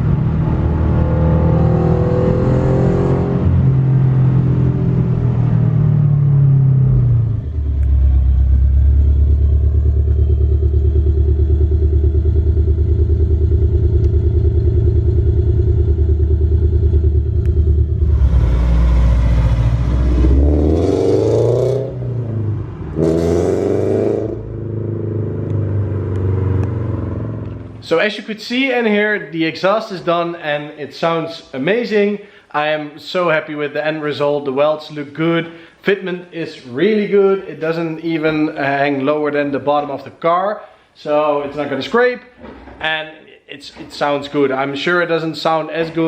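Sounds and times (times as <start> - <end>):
engine revving: 0.0 - 27.9
car engine idling: 4.1 - 27.9.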